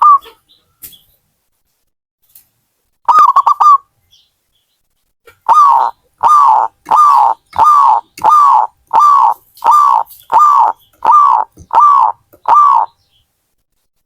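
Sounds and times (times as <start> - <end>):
dove cooing: 5.4 - 13.0.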